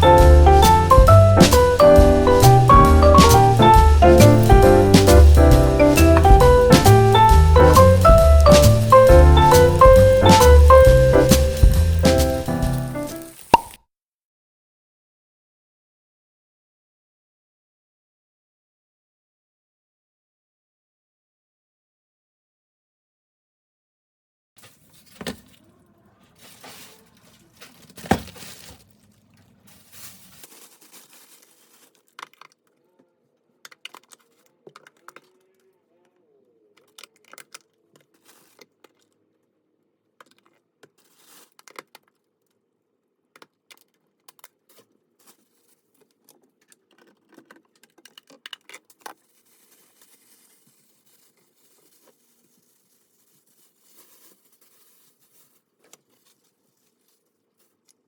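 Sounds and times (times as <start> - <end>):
objects being handled: 0.0 - 13.8, 24.6 - 35.7, 36.7 - 39.5, 40.1 - 58.0.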